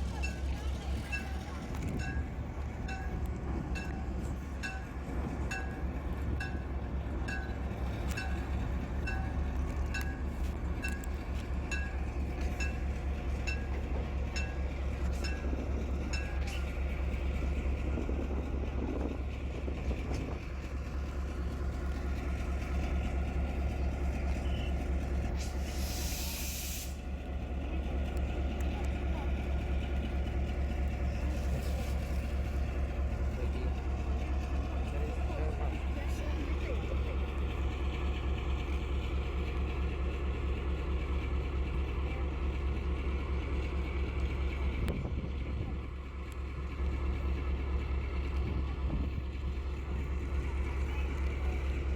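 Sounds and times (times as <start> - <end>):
train rumbling: 0.0 - 51.9
air hiss: 25.4 - 27.0.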